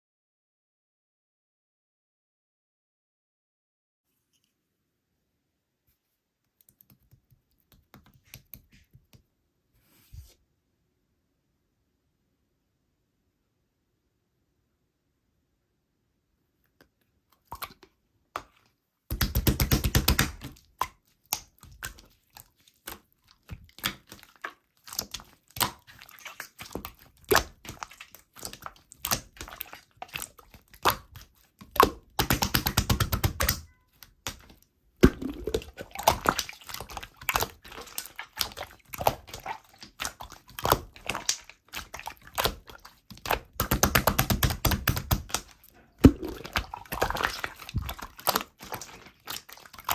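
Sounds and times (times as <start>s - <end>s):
slime squished by hand: 17.4s - 49.9s.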